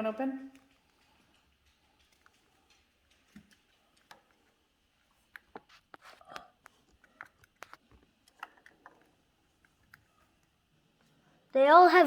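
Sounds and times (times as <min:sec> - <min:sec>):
plastic toy egg clicking and snapping: 0:05.3 - 0:10.1.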